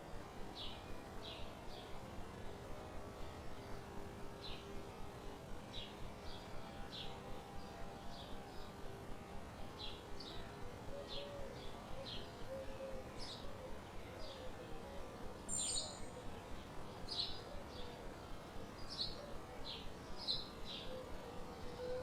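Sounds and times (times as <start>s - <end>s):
small birds chirping: 15.5s - 17.9s, 18.7s - 21.8s.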